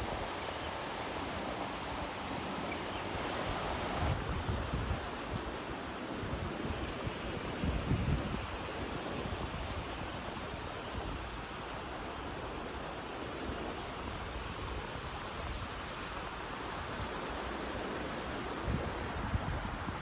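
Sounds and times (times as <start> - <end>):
wind buffeting microphone: 0.0 - 11.6, 17.8 - 20.0
sea waves washing on beach: 0.0 - 20.0.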